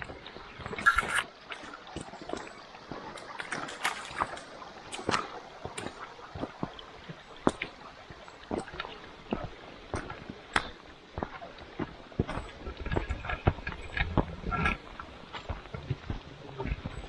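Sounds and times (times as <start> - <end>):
stream trickling: 0.8 - 8.1.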